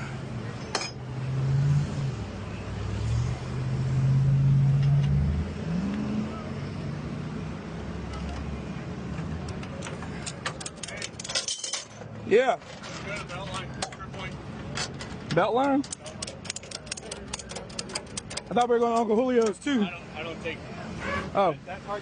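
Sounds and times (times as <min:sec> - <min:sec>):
vehicle engine accelerating: 0:01.0 - 0:09.7.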